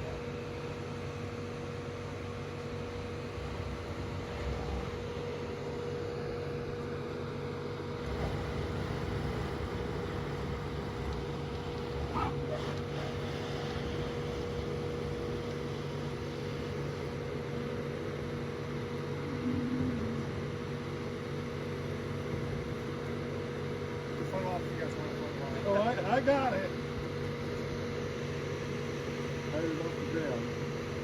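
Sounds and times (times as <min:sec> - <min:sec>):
steady mechanical hum: 0:00.0 - 0:31.0
even rushing noise: 0:19.1 - 0:21.5.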